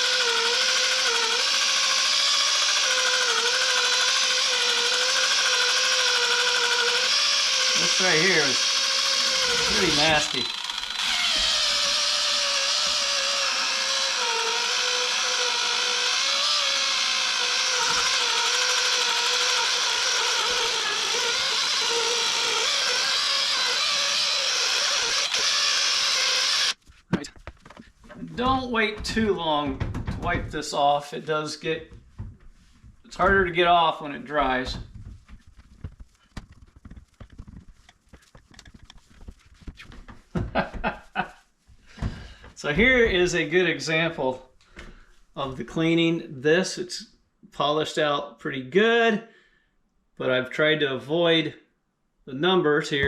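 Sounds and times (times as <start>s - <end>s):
polisher motor whine: 0.0s - 26.8s.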